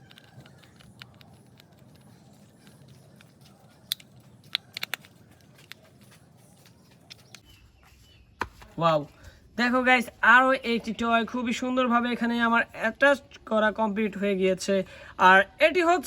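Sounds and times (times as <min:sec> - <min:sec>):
plastic toy parts clicking: 0:00.0 - 0:05.8.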